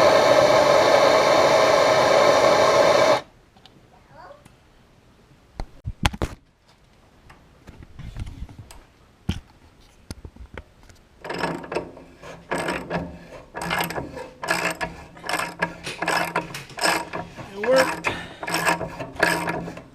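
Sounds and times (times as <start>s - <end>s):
sharp metal clicks: 11.2s - 19.9s.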